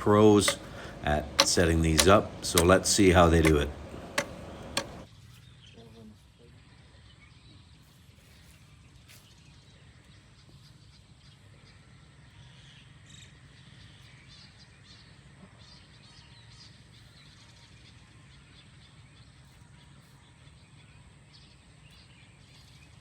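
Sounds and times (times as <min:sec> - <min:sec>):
small birds chirping: 0:00.0 - 0:17.6.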